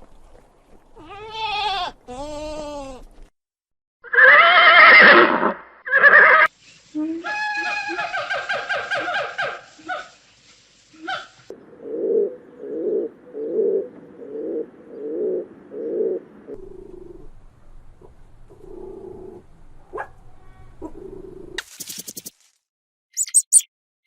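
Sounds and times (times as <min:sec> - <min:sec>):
soft steady low animal sounds: 0:09.0 - 0:21.6
animal making low repeated calls: 0:11.0 - 0:17.4.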